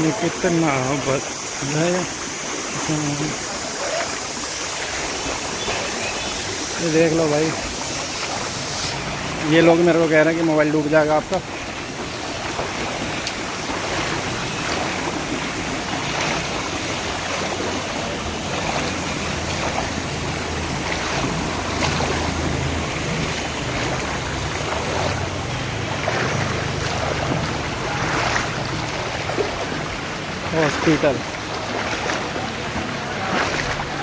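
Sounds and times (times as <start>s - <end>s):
floodwater sloshing and splashing: 0.0s - 34.0s
low motor hum: 12.0s - 34.0s.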